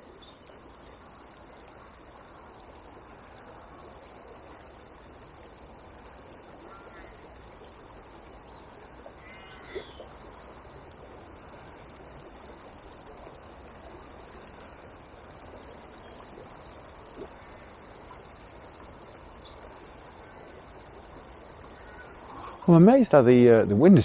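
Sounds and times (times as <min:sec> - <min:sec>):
small river flowing: 0:00.0 - 0:24.0
bird calling: 0:06.6 - 0:07.3, 0:09.2 - 0:10.2, 0:21.6 - 0:22.8.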